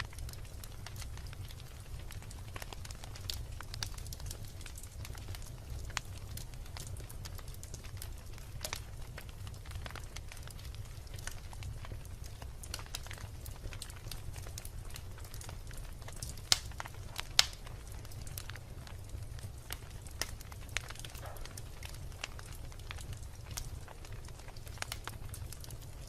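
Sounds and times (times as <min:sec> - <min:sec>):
fire low rumble: 0:00.0 - 0:26.0
logs crackling in a fireplace: 0:00.0 - 0:26.0
sharp pops of burning logs: 0:00.2 - 0:26.0.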